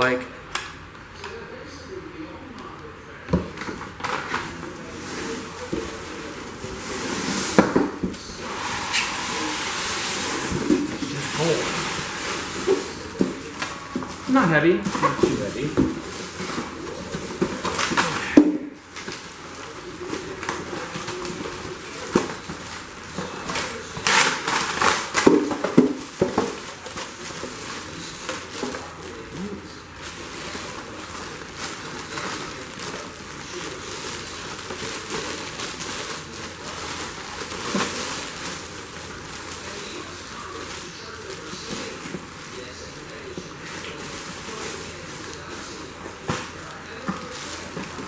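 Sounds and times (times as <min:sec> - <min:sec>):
plastic packaging rustling and crinkling: 0:03.4 - 0:48.0.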